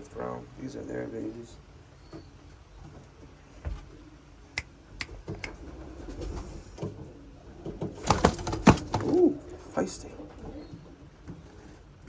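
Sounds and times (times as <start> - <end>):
pigeons cooing: 3.9 - 12.0.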